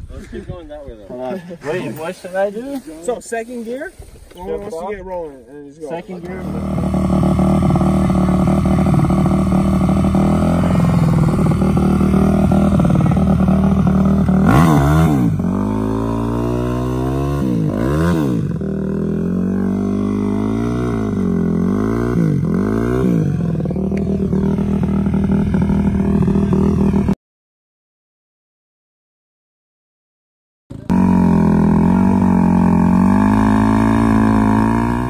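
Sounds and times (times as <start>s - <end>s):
vehicle engine revving: 6.2s - 27.2s, 30.7s - 35.0s.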